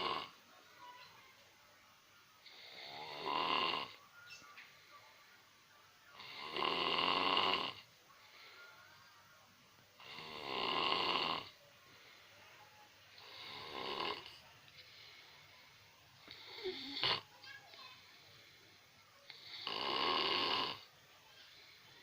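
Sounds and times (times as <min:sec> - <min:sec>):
person snoring: 0:00.0 - 0:00.3, 0:02.4 - 0:04.0, 0:06.2 - 0:07.8, 0:10.0 - 0:11.6, 0:13.2 - 0:14.3, 0:16.2 - 0:17.2, 0:19.3 - 0:20.9.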